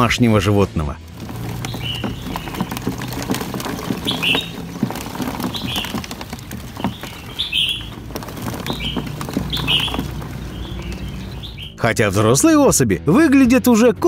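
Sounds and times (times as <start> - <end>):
hand rummaging: 1.0 - 11.7
claws scrabbling on plastic: 1.0 - 11.8
bird chirping: 1.1 - 11.9.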